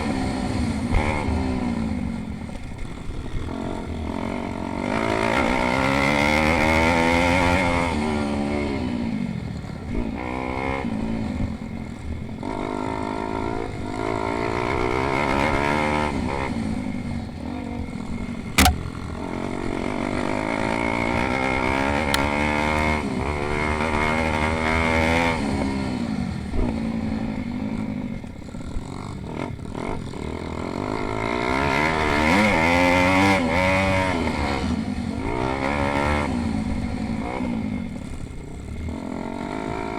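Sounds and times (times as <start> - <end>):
small motorcycle engines revving: 0.0 - 39.9
sharp knock: 18.6 - 18.9.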